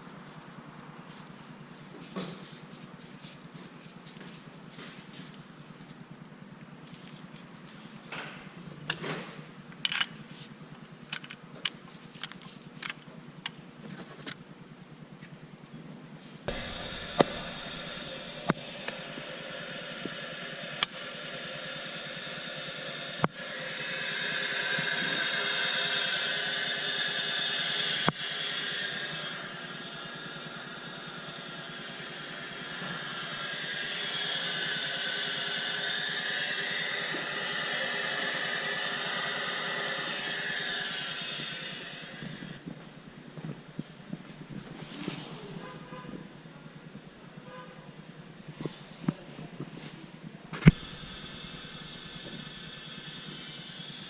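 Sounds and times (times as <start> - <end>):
compressed air hissing: 16.5 - 42.6, 50.6 - 54.0.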